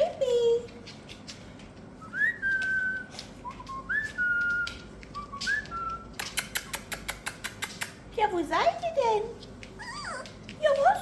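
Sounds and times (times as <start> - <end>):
person whistling: 2.1 - 6.0.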